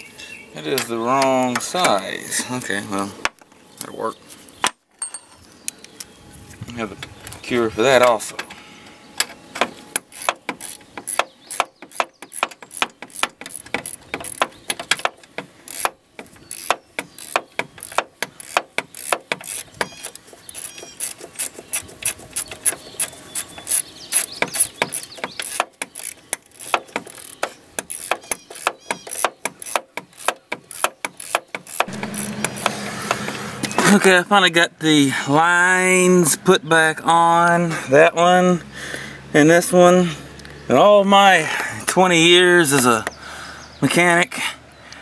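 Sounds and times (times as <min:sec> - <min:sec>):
ratchet wrench clicking: 0:15.7 - 0:15.9, 0:16.5 - 0:32.7.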